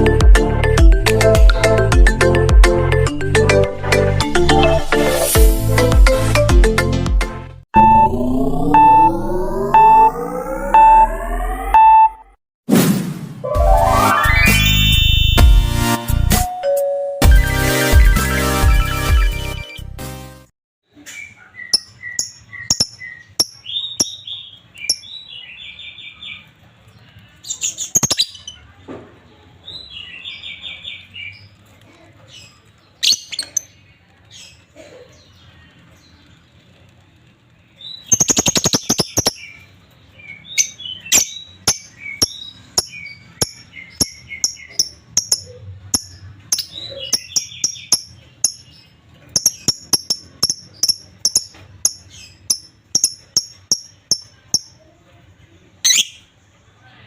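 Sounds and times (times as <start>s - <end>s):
lovebirds chirping: 21.0s - 28.6s, 32.2s - 36.6s, 37.7s - 54.8s.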